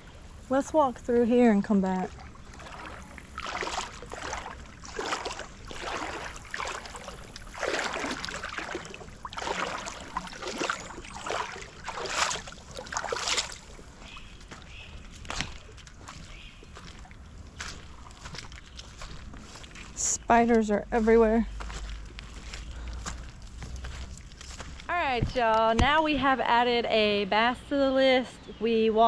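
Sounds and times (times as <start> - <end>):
footsteps wading through water: 0.0 - 25.6.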